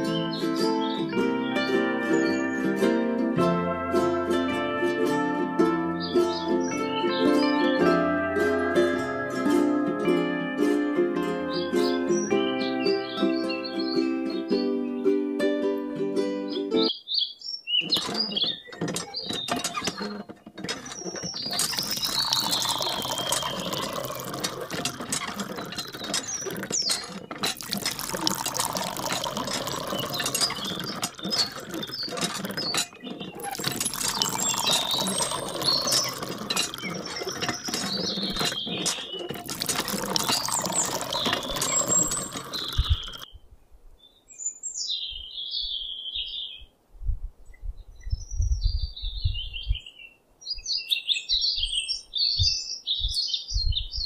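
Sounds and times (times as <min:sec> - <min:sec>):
squeaking hand water pump: 0:00.0 - 0:07.0, 0:17.8 - 0:43.3
water running: 0:17.8 - 0:43.3.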